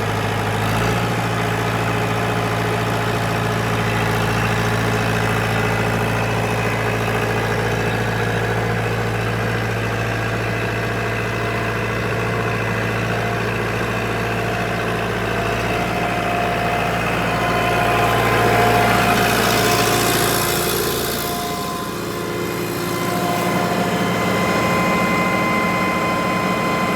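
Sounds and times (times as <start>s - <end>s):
tractor diesel engine idling: 0.0s - 26.9s.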